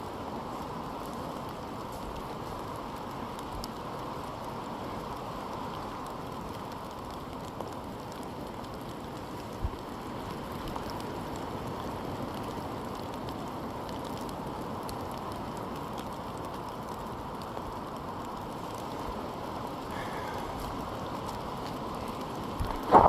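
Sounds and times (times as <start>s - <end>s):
steady rain in forest: 0.0s - 23.0s
low thump: 22.7s - 23.0s.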